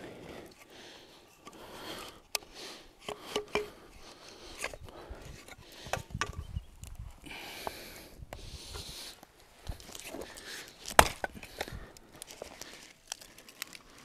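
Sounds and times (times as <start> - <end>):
wooden knocks and clicks: 5.9 - 6.6.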